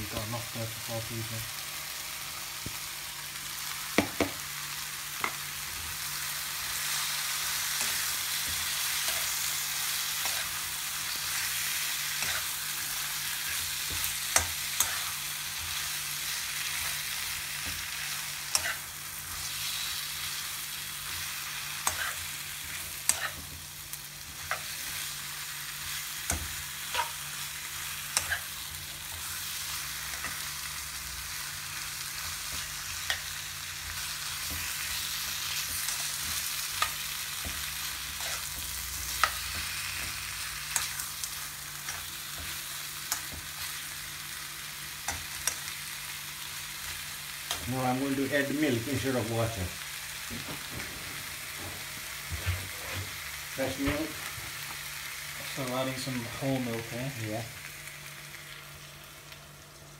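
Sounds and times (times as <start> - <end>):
food sizzling in a wok: 0.0 - 59.9
fork scraping a pan: 10.1 - 10.6, 12.1 - 12.6, 14.7 - 15.2, 18.5 - 18.9, 21.8 - 22.3, 23.0 - 23.4, 28.1 - 28.5, 38.1 - 38.5.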